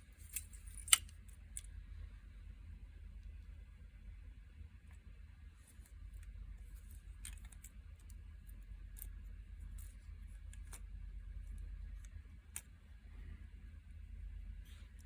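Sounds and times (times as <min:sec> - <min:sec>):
steady low hum: 0:00.0 - 0:15.0
small metal parts clicking: 0:00.2 - 0:01.7.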